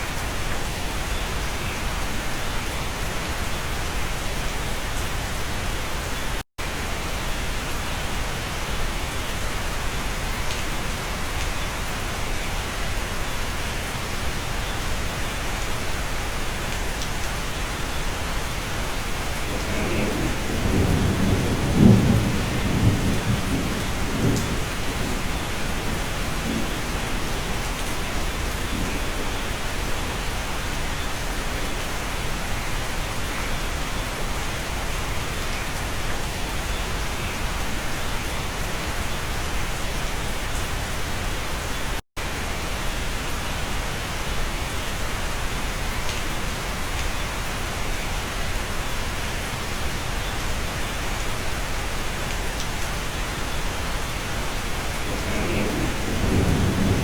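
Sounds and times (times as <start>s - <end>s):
steady rain: 0.0s - 57.0s
thunder rumble: 18.8s - 30.2s, 54.3s - 57.0s.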